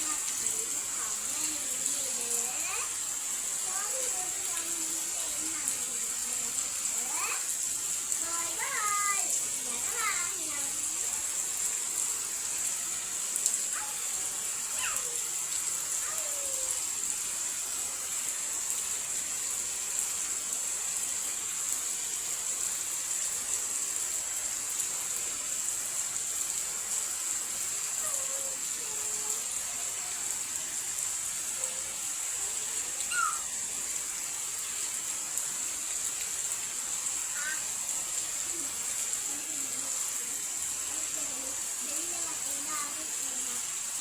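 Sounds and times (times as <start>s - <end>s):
steady rain hiss: 0.0s - 44.0s
faint short calls: 33.0s - 33.6s, 37.3s - 37.7s.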